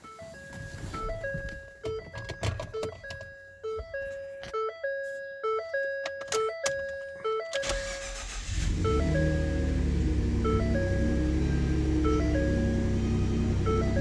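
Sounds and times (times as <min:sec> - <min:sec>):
truck engine starting and idling: 0:07.5 - 0:14.0
electronic chiming tones: 0:08.8 - 0:14.0.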